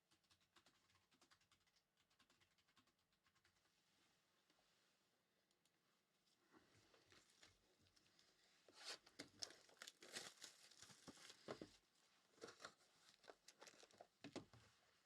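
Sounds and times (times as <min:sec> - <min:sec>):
card pack wrapper crinkling and tearing: 0:09.1 - 0:11.4, 0:12.4 - 0:14.1.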